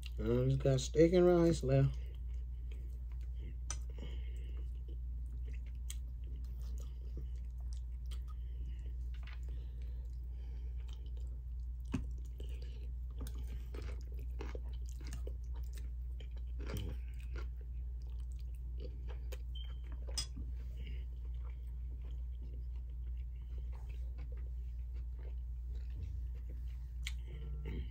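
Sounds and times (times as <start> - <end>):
steady low hum: 0.0 - 27.9
person chewing: 1.9 - 27.9.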